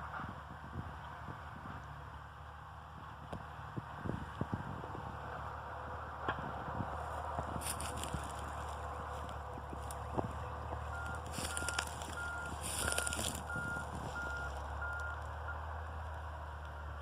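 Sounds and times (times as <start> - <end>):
vehicle reversing alarm beeping: 7.9 - 8.6, 9.8 - 15.7, 16.7 - 17.0.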